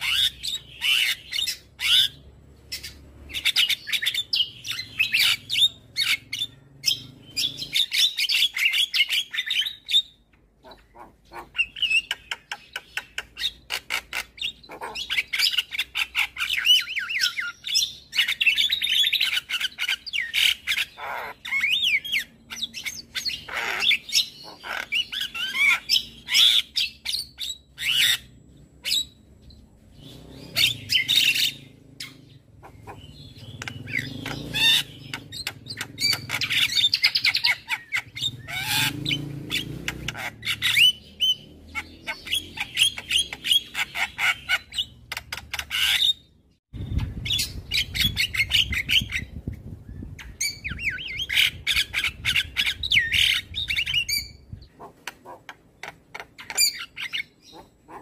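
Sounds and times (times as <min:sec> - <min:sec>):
harsh low bird calls: 0:00.0 - 0:58.0
bird singing clicks and whistles: 0:33.4 - 0:37.4.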